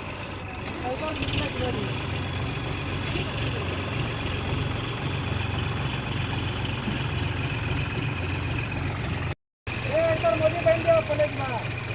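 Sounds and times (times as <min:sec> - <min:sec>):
tractor engine running: 0:00.0 - 0:11.9.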